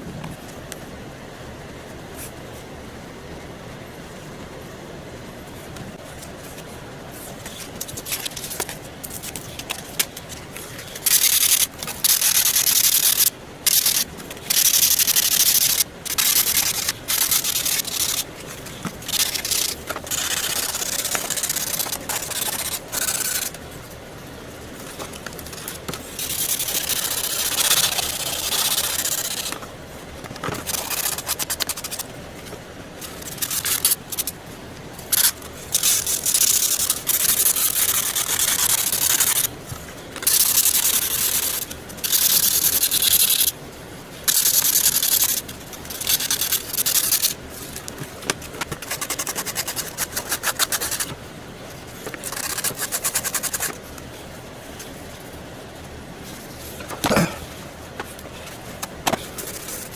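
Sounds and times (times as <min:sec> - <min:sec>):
hand sanding scraping strokes: 0:11.0 - 0:23.6.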